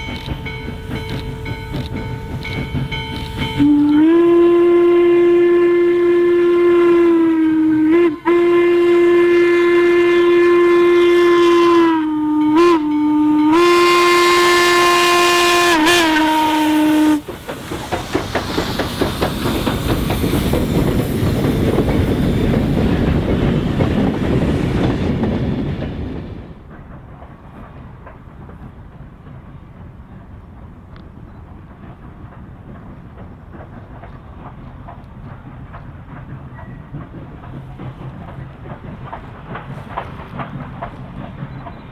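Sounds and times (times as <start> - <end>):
locomotive exhaust beats: 0.0 - 41.9
rail noise: 0.0 - 41.9
steam locomotive whistle blasts: 3.2 - 17.3.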